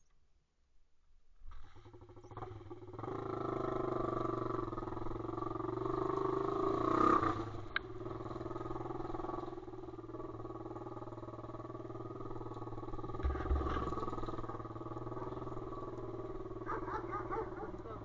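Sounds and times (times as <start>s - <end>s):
motorbike engine running: 1.7s - 18.0s.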